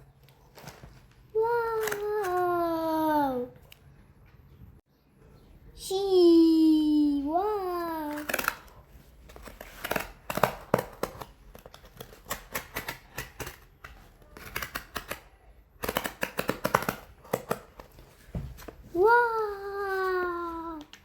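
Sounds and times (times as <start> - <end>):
packaging crinkling and rustling: 0.0 - 2.4.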